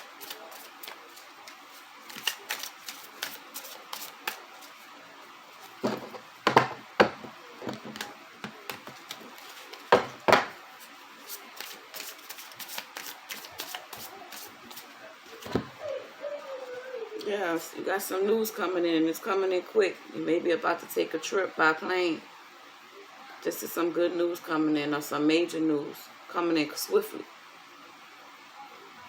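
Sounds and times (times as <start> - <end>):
cards shuffling and clicking: 0.0 - 4.8, 5.6 - 15.6
cards slapping: 0.0 - 4.8, 11.3 - 14.9.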